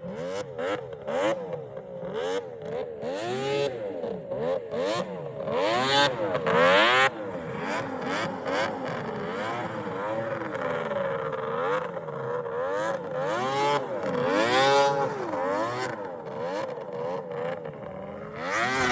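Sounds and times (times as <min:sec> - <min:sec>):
snowmobile engine revving: 0:04.4 - 0:18.9.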